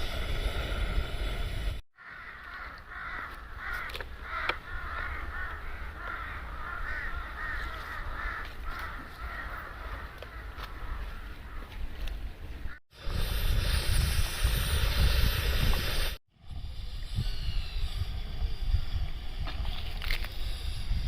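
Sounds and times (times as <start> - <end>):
crows cawing: 2.0 - 11.8
low wind-like rumble: 2.9 - 21.0.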